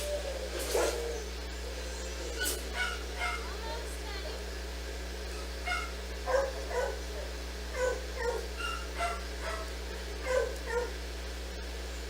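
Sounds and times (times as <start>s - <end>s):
dog barking: 2.7s - 3.6s, 5.4s - 11.0s.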